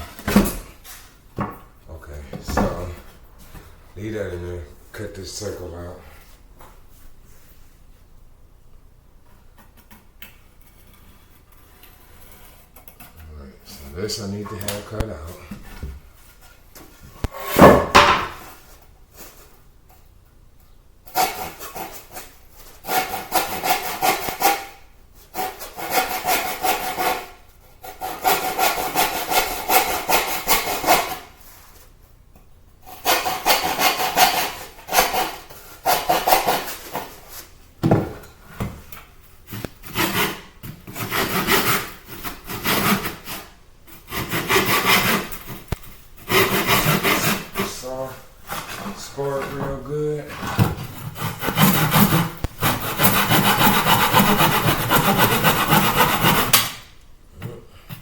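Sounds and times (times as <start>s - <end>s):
hand saw cutting wood: 21.1s - 31.4s, 32.9s - 37.2s, 39.5s - 49.6s, 50.3s - 56.8s.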